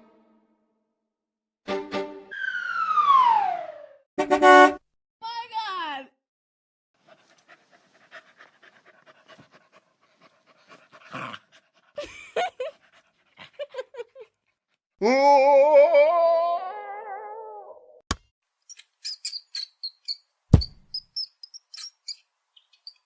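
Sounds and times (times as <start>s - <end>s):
dog panting: 7.0s - 14.8s.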